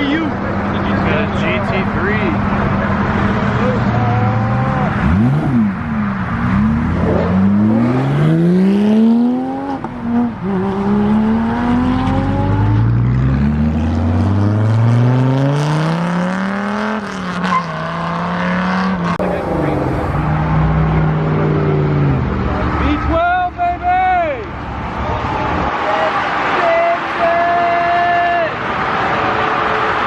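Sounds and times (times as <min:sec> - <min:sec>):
car engine accelerating: 0:00.3 - 0:22.8.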